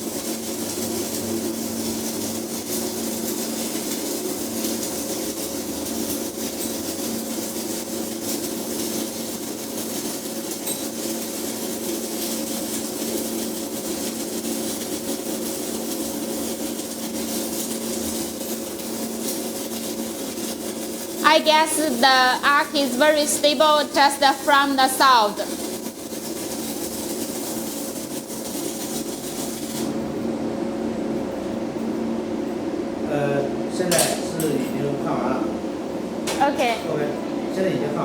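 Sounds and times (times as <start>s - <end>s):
welding arc crackling: 0.0s - 30.0s.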